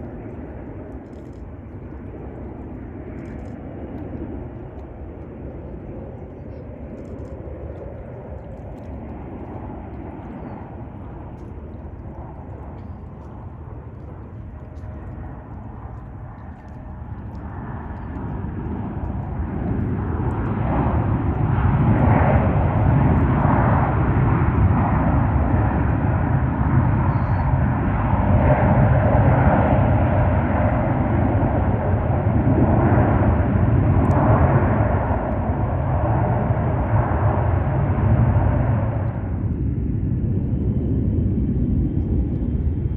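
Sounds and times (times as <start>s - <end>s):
jet airliner passing: 0.0s - 42.9s.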